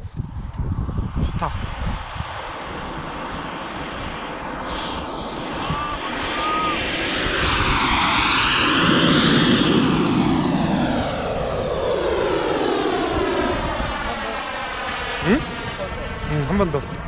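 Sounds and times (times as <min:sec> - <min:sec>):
model jet rushing past: 0:00.2 - 0:17.0.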